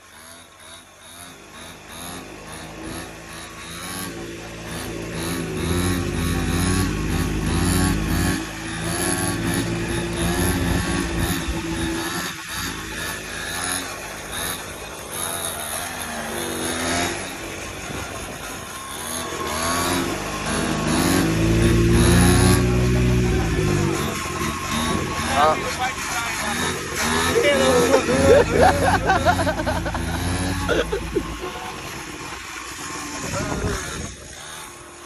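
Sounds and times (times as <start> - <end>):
small engine revving: 0.0 - 35.0.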